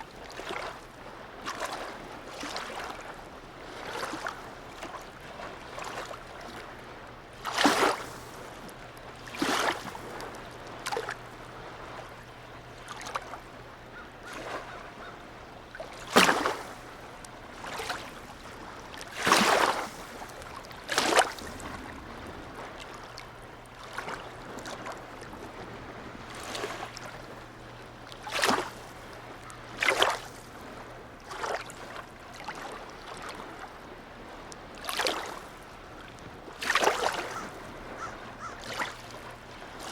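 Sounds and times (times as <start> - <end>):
water lapping and splashing: 0.0 - 39.9
steady low hum: 20.0 - 29.8.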